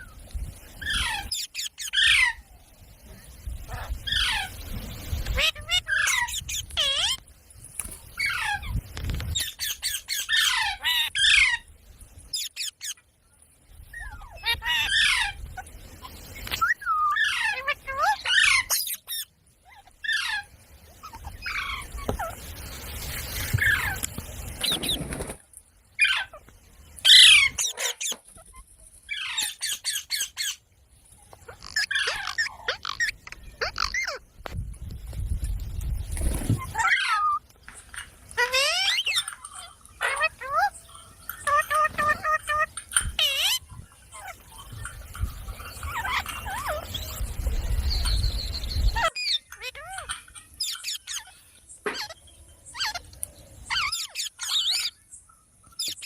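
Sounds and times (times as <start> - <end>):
parrot squawking: 5.2 - 7.2, 16.6 - 22.4, 31.5 - 34.2, 36.6 - 37.4, 38.4 - 40.8, 41.4 - 44.4, 49.0 - 53.0, 53.7 - 54.9.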